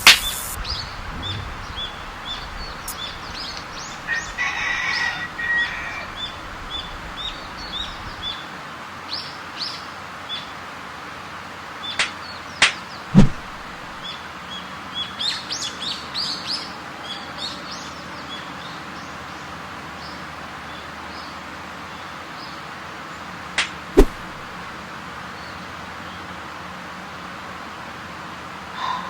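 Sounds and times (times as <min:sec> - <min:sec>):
background hiss: 0:00.0 - 0:04.7
birds chirping: 0:00.0 - 0:08.3
sharp knocks: 0:13.2 - 0:13.8, 0:24.0 - 0:24.5.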